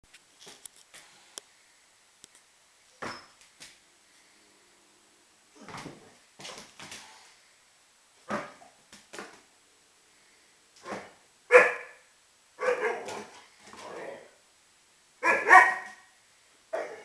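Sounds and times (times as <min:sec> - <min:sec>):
dog barking: 0:10.8 - 0:13.3, 0:15.2 - 0:16.1, 0:16.7 - 0:17.0.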